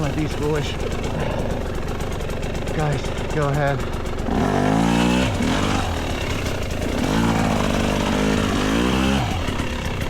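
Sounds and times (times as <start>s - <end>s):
dirt bike idling: 0.0s - 10.0s
dirt bikes revving past: 4.2s - 10.0s.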